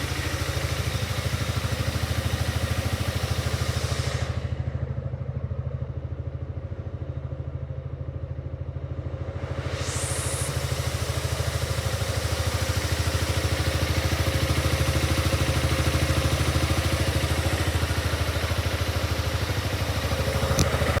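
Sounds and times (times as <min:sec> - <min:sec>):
scooter engine idling: 0:00.0 - 0:21.0
brief click: 0:20.5 - 0:20.8.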